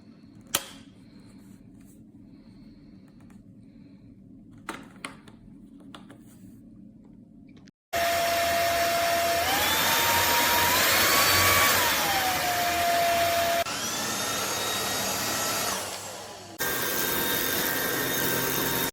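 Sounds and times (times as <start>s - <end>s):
stick vacuum motor whine: 8.0s - 18.9s.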